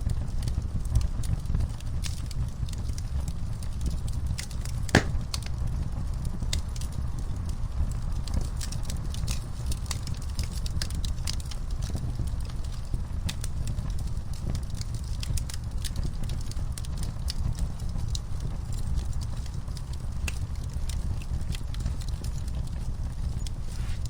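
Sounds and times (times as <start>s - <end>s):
wood fire crackling: 4.9s - 5.6s, 20.2s - 24.0s.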